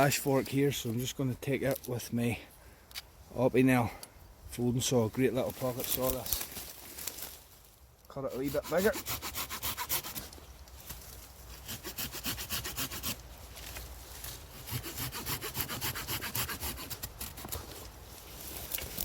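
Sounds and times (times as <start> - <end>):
hand saw cutting branch: 8.2 - 10.4, 11.4 - 13.3, 14.3 - 17.8.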